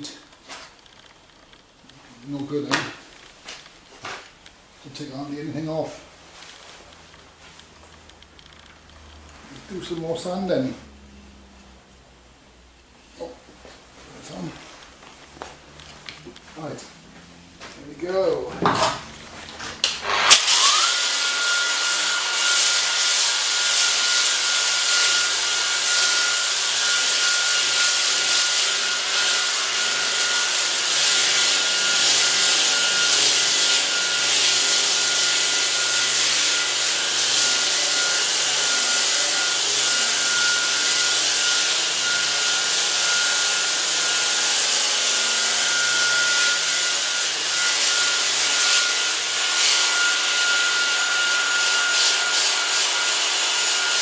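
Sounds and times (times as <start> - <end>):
sander motor whine: 16.0 - 54.0.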